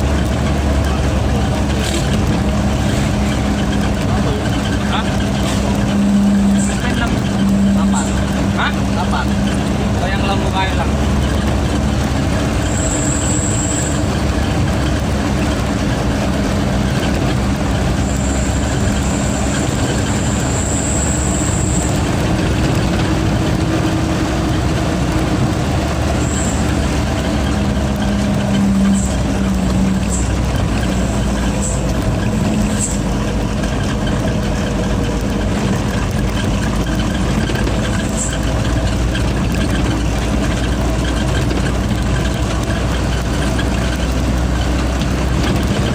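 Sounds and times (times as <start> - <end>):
truck diesel engine running: 0.0 - 45.9.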